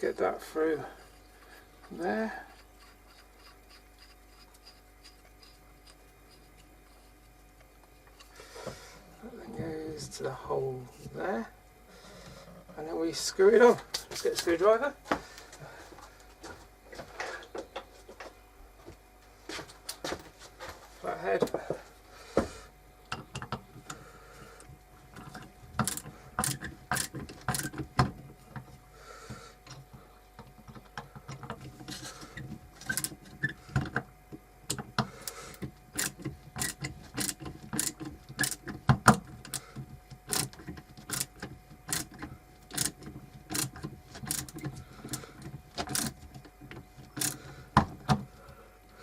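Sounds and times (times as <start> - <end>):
screwdriver clicking and scraping: 2.5 - 7.4, 25.2 - 27.8, 31.3 - 34.0, 34.7 - 47.5.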